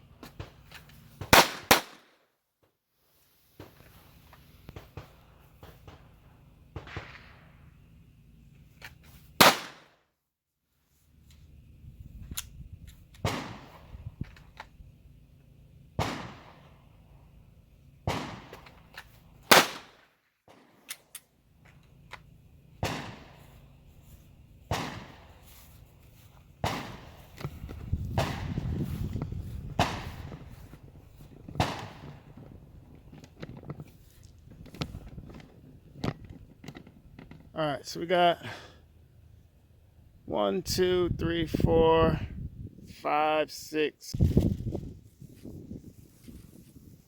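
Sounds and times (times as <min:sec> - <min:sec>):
gunshots: 0:01.2 - 0:02.1, 0:06.8 - 0:07.5, 0:09.4 - 0:09.9, 0:13.2 - 0:13.9, 0:16.0 - 0:16.7, 0:18.0 - 0:18.7, 0:19.4 - 0:20.7, 0:22.8 - 0:23.4, 0:24.7 - 0:25.4, 0:26.6 - 0:28.7, 0:29.7 - 0:30.5, 0:31.6 - 0:32.3.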